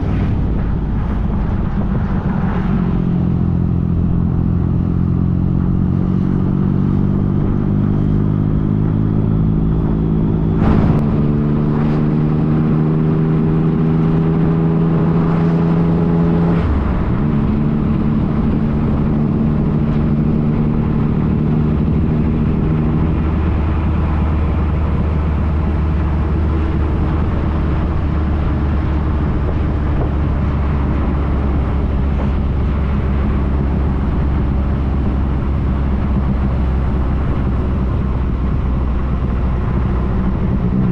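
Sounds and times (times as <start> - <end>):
motorcycle engine running: 0.0 - 15.5
wind rush: 0.0 - 40.9.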